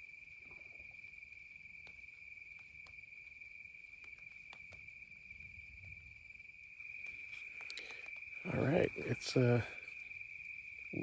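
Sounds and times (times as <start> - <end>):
crickets trilling: 0.0 - 11.0
soft ticks: 1.8 - 4.8.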